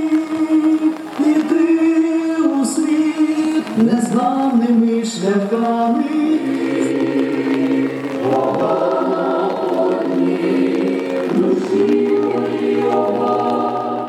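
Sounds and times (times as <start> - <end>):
choir singing: 5.6 - 14.0.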